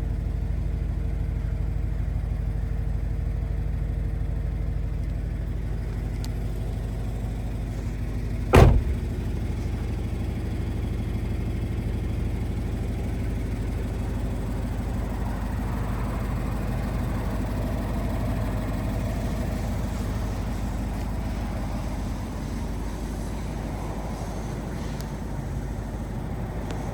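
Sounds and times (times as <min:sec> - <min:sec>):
car engine idling: 0:08.5 - 0:09.5
loud sharp thump: 0:08.6 - 0:09.2.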